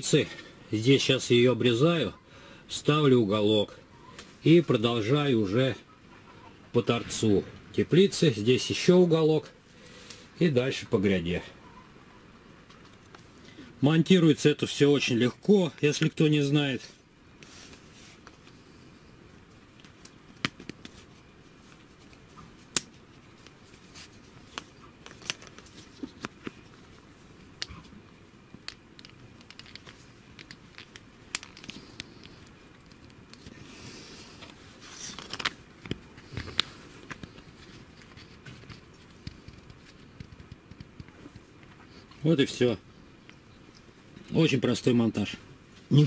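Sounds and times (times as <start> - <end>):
rustling: 19.5 - 28.0, 28.6 - 42.2.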